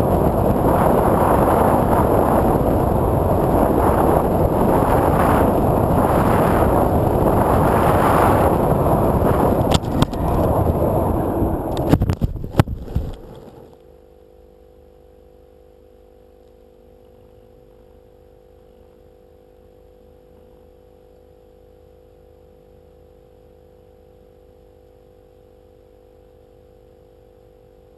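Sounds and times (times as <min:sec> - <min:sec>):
loud rattling noise: 0:00.0 - 0:13.7
faint steady hum with tones: 0:00.0 - 0:27.9.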